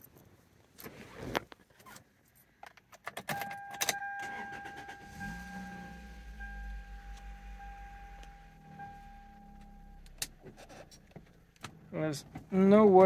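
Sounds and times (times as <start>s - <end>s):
keys jingling in ignition: 3.1s - 11.0s
car engine starting and idling: 3.3s - 13.0s
steady electronic tone: 4.9s - 10.5s.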